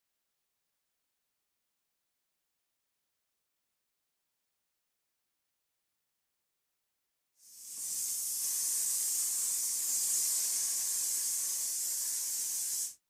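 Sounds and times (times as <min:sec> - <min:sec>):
steady high hiss: 0:07.4 - 0:13.0.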